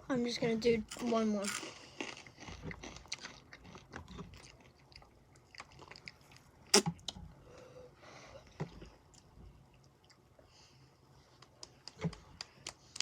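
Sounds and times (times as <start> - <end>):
chips crunching while chewed: 0.9 - 6.2.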